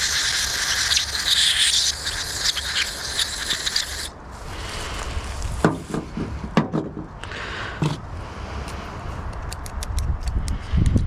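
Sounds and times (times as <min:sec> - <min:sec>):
aerosol spray hissing: 0:00.0 - 0:04.1.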